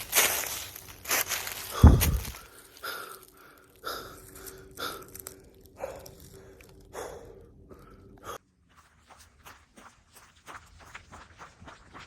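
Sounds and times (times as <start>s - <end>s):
footsteps on trail: 0.0s - 7.2s, 7.8s - 12.0s
person breathing: 1.6s - 8.4s.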